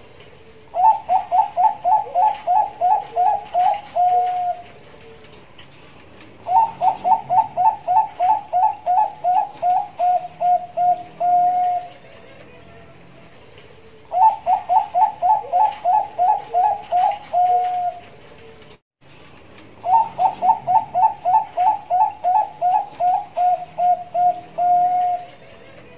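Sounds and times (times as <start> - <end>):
dove cooing: 0.0 - 18.7, 19.7 - 25.9.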